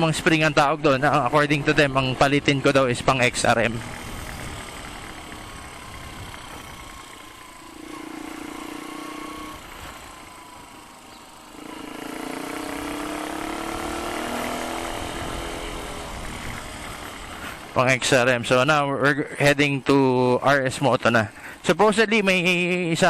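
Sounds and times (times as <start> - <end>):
vehicle engines running: 0.0 - 23.0
engine revving up: 3.2 - 18.3.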